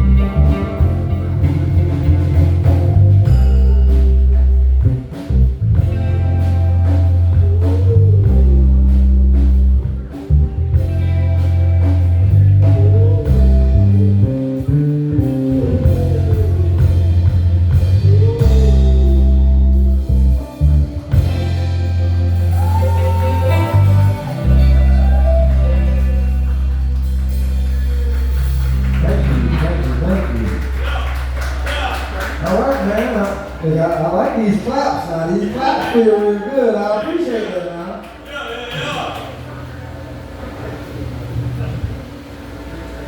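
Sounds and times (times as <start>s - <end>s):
sliding lead melody: 0.0s - 32.8s
electric bass line: 0.0s - 35.8s, 39.3s - 43.0s.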